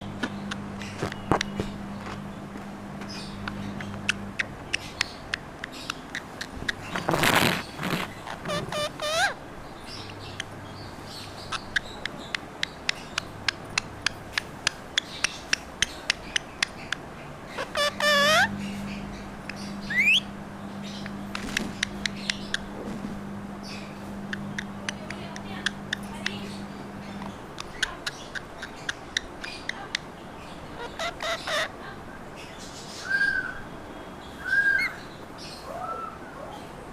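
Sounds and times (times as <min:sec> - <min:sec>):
parrot chirp: 0:03.1 - 0:22.8, 0:23.6 - 0:31.8, 0:34.3 - 0:36.6
parrot whistled calls: 0:17.6 - 0:18.5, 0:19.8 - 0:20.3, 0:33.0 - 0:33.6, 0:34.4 - 0:35.0
parrot clicking: 0:24.3 - 0:26.6, 0:27.2 - 0:30.1.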